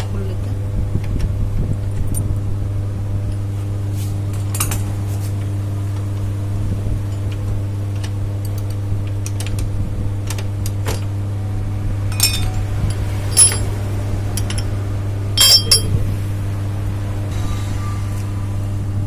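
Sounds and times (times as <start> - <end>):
steady low hum: 11.4 - 17.3
metal tools clinking: 12.2 - 13.8, 15.4 - 16.0.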